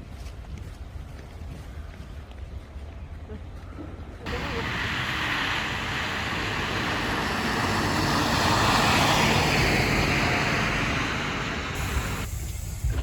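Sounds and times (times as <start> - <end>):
vehicle rushing past: 4.3 - 12.3.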